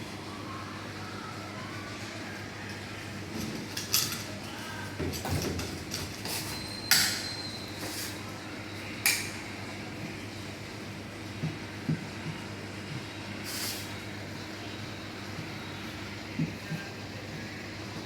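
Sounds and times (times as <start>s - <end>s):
low machinery hum: 7.2s - 18.0s.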